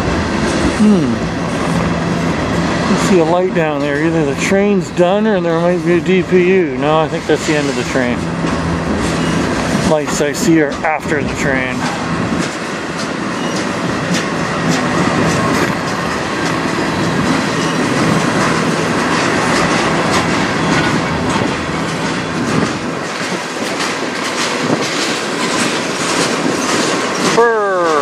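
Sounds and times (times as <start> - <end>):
train wheels rumbling on rail: 0.0 - 28.0
wheels clacking over rail joints: 1.5 - 28.0.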